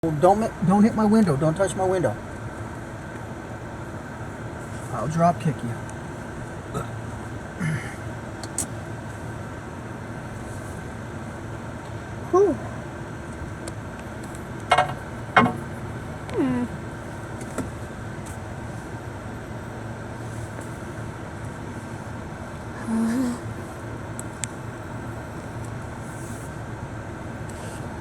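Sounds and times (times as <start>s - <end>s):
truck engine running: 0.0s - 28.0s
sharp knocks: 14.7s - 15.7s.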